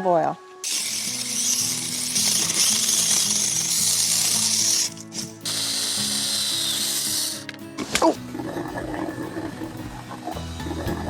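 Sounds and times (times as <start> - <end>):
electric mini chainsaw whirring: 0.6 - 7.5.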